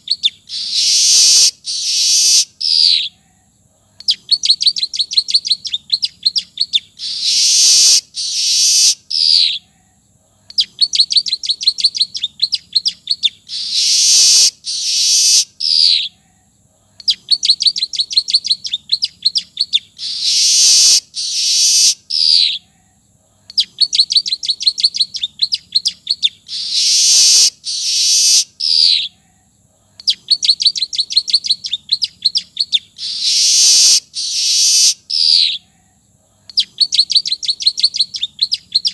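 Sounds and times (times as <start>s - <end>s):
dry ticking bird notes: 0.0s - 3.1s, 4.0s - 9.6s, 10.5s - 16.1s, 30.0s - 35.6s
buzzy bird phrases: 0.0s - 38.9s
weaver bird song: 0.0s - 38.9s.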